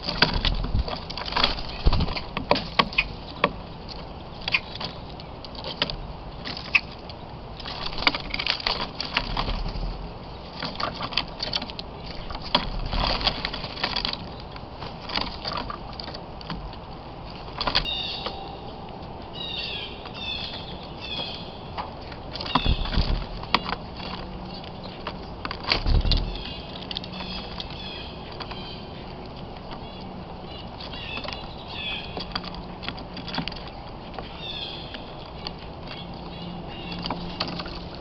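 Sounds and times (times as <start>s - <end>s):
bird taps and rustles: 0.0s - 18.4s, 20.0s - 34.3s
birds chirping: 0.0s - 38.0s.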